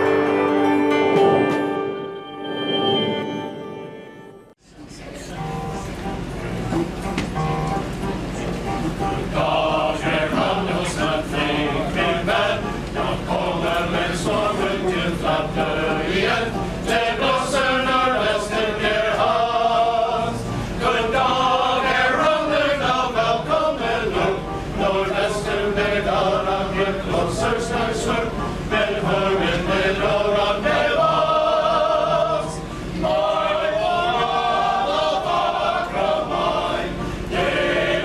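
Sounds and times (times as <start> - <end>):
male chorus singing: 9.0 - 38.0.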